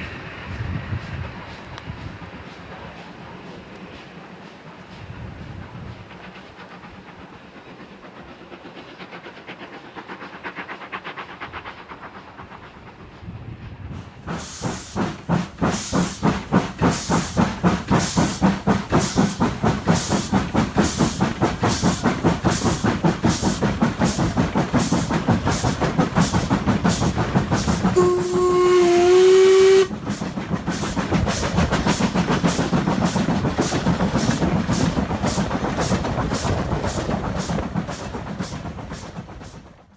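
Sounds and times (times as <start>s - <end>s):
steam locomotive exhaust beats: 0.0s - 39.9s
steam whistle blast: 27.9s - 30.0s.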